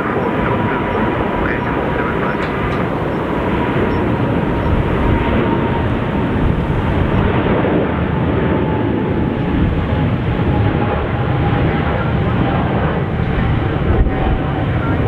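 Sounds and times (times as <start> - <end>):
faint high engine whine: 0.0 - 15.0
jet engines roaring: 0.0 - 15.0.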